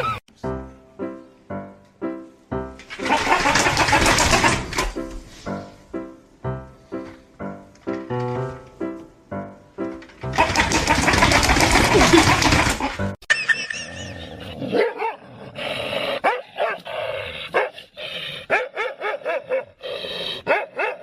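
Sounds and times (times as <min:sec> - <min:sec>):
dog barking and yipping: 0:14.7 - 0:15.2, 0:16.2 - 0:16.9, 0:17.5 - 0:17.8, 0:18.5 - 0:19.8, 0:20.4 - 0:21.0.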